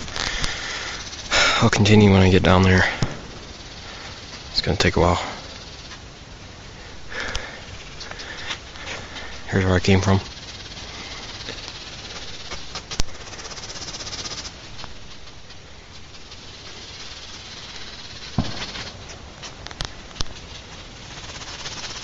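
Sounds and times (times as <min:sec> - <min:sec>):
insects trilling hiss: 0:00.0 - 0:22.0
sharp clicks: 0:18.3 - 0:20.4
thump: 0:18.4 - 0:18.7.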